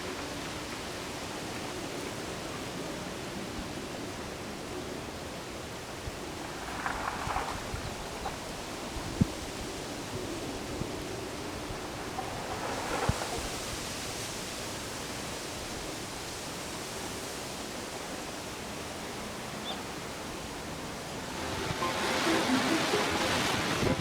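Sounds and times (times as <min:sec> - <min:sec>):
wind blowing: 0:05.8 - 0:15.0, 0:20.4 - 0:24.0.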